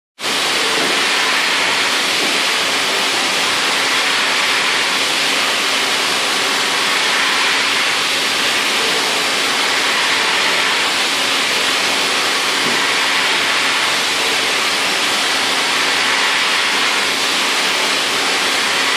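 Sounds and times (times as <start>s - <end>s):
milling machine rushing noise: 0.2s - 18.9s.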